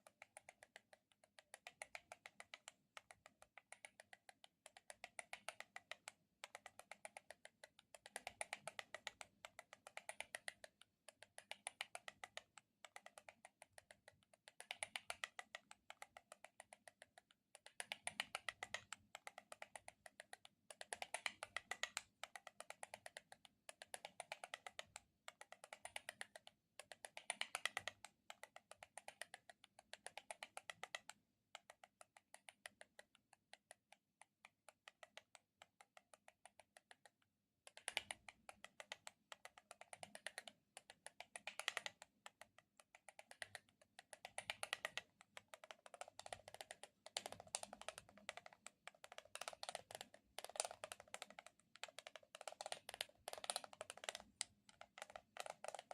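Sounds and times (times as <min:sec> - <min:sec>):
soft handling clicks and crackles: 0:00.0 - 0:55.9.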